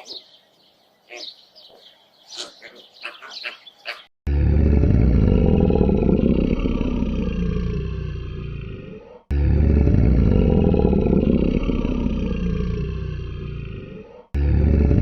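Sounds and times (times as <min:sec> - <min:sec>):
chirping bird calls: 0:00.0 - 0:04.1
low animal roar: 0:04.3 - 0:15.0.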